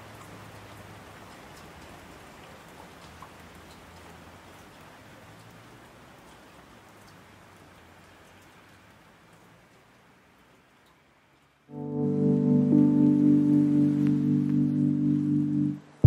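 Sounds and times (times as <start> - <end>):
soft rain-like hiss: 0.0 - 16.0
light ticks: 0.1 - 5.6, 6.2 - 7.2, 8.0 - 8.7.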